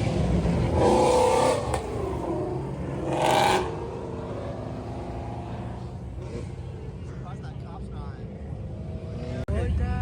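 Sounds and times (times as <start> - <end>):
car engine revving: 0.0 - 7.3.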